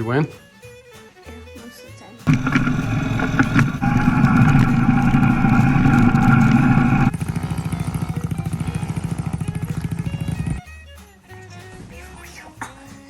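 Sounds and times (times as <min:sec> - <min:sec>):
dirt bike engine running: 0:02.3 - 0:10.6.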